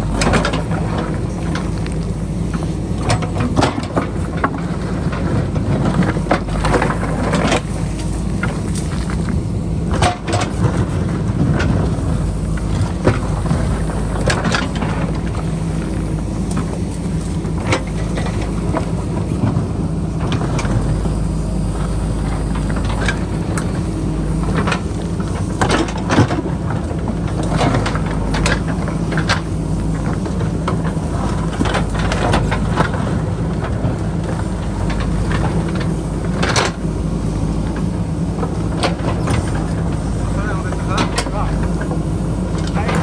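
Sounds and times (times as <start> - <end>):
diesel engine under load: 0.0 - 43.0.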